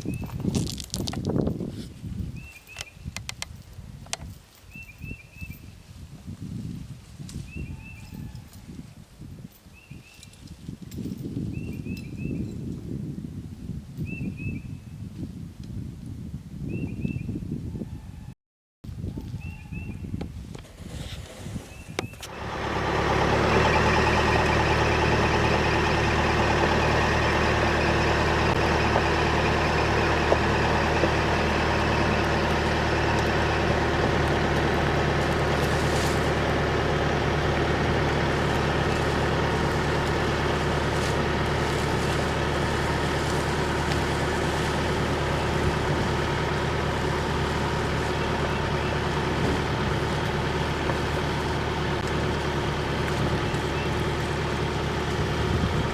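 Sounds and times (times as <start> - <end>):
tractor engine running: 21.6 - 55.9.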